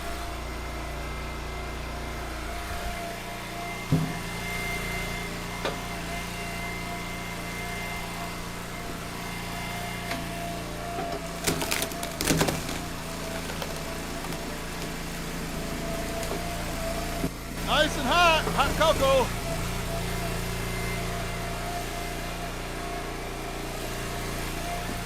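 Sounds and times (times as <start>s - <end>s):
log splitter engine running: 0.0s - 25.0s
wood cracking: 11.2s - 15.4s.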